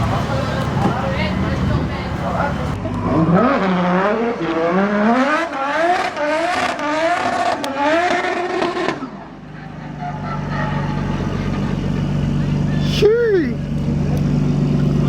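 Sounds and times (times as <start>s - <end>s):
car engine revving hard: 0.0s - 15.0s.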